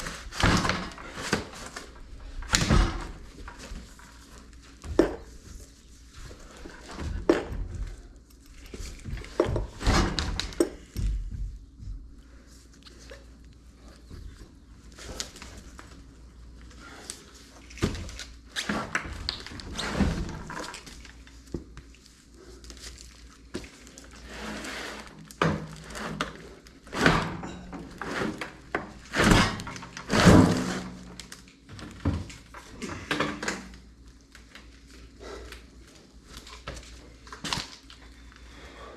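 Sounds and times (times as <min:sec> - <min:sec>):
tools and metal parts clunking: 0:26.9 - 0:31.0.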